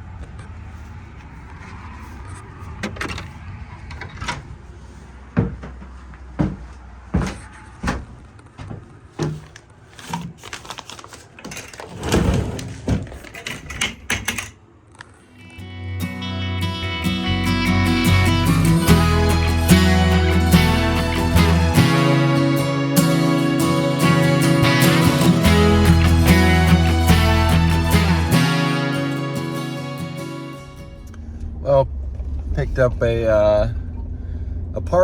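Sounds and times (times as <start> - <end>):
low steady hum: 30.6 - 35.0.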